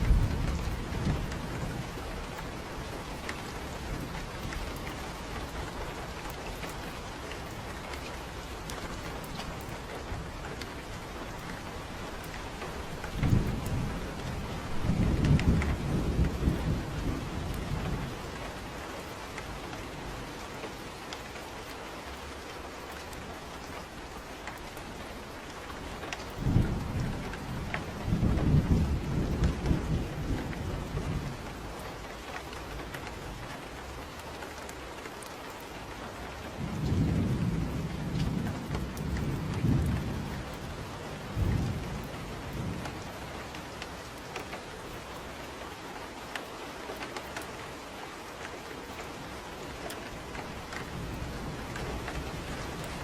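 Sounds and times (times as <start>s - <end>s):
thunder rumbling: 0.0s - 20.5s, 25.2s - 34.1s, 36.4s - 45.2s, 49.3s - 53.0s
steady rain: 0.0s - 53.0s.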